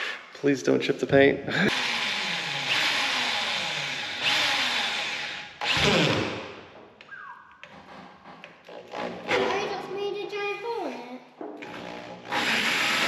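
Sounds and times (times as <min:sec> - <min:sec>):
power drill boring sheet metal: 0:01.7 - 0:06.4, 0:11.6 - 0:13.0.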